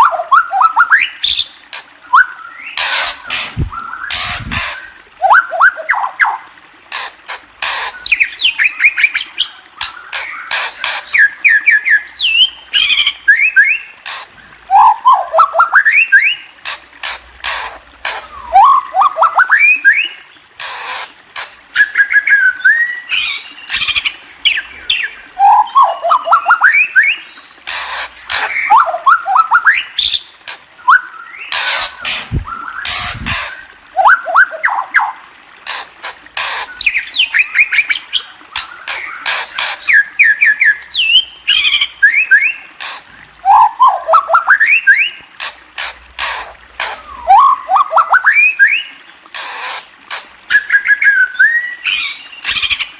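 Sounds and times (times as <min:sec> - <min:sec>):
bird clicking calls: 0:23.1 - 0:52.9.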